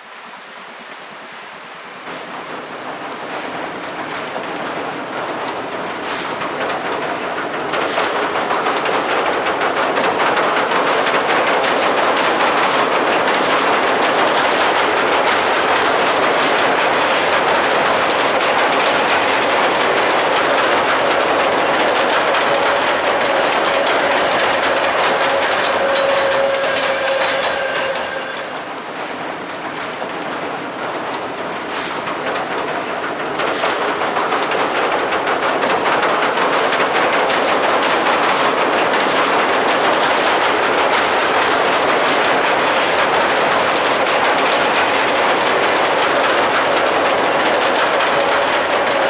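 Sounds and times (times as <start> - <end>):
train rumbling over bridge: 0.0 - 49.0
wheels clacking over rails: 2.1 - 49.0.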